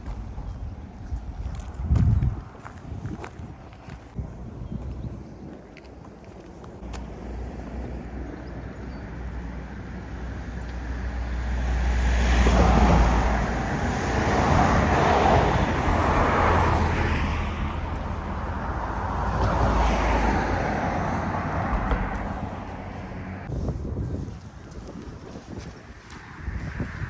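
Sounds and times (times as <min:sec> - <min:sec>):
vehicles passing close by: 0:05.8 - 0:27.0.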